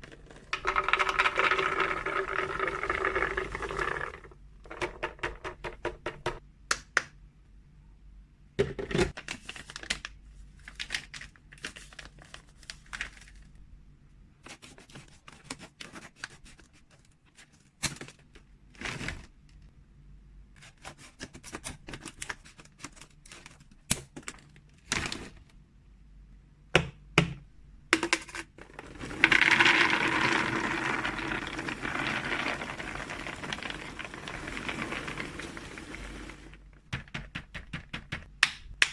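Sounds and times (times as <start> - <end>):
packaging crinkling: 0.0 - 4.2, 28.6 - 36.8
loud continuous packaging rustle: 9.1 - 13.6, 28.6 - 36.9.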